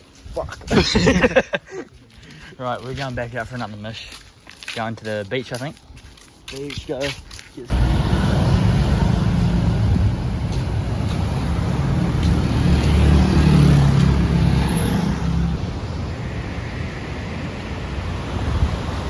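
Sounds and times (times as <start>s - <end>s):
vehicle engine rumble: 7.6s - 19.0s.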